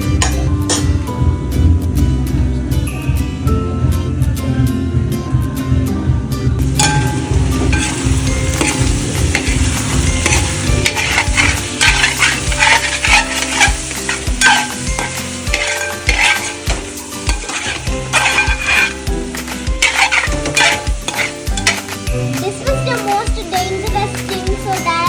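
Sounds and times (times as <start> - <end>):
spatula scraping and knocking pan: 6.6 - 24.7
chicken sizzling in a pan: 6.6 - 25.0.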